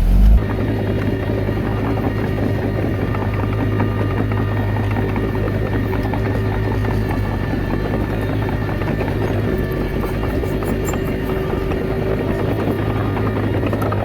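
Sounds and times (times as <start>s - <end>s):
tracks and blade clanking: 0.0s - 0.5s
bulldozer diesel engine running: 0.0s - 14.0s.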